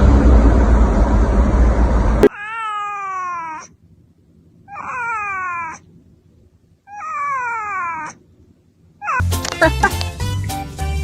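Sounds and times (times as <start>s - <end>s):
cat meowing: 2.2s - 3.8s, 4.7s - 5.8s, 6.9s - 8.2s, 9.0s - 9.4s.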